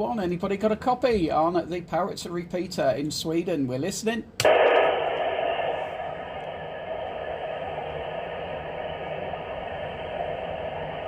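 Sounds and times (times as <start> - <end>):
radio static hiss: 4.4 - 11.0.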